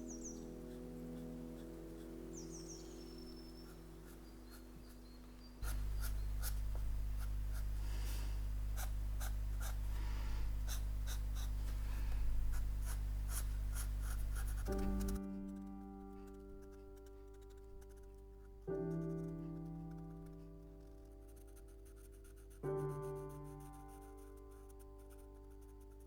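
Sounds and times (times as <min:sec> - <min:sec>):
pen scratching on paper: 0:00.6 - 0:26.0
low hum: 0:02.9 - 0:17.0.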